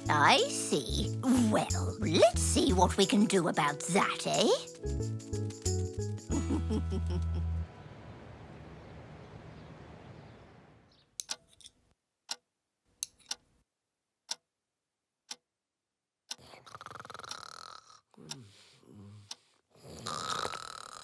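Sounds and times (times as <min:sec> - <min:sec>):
clock ticking: 0:11.2 - 0:11.5, 0:13.0 - 0:13.4.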